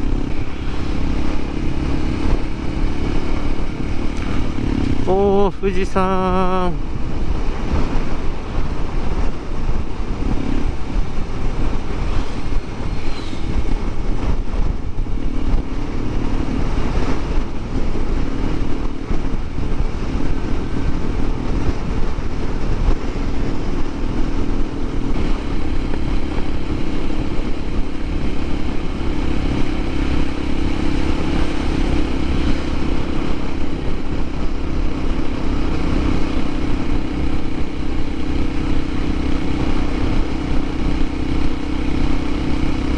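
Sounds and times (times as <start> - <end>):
heavy wind noise: 0.0 - 42.9
motorcycle engine running: 0.0 - 42.9.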